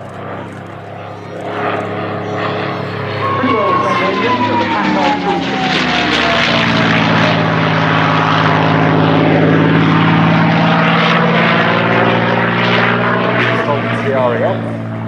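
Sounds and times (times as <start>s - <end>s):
aircraft engine running loud: 0.0s - 15.0s
high falling whistle: 3.1s - 6.7s.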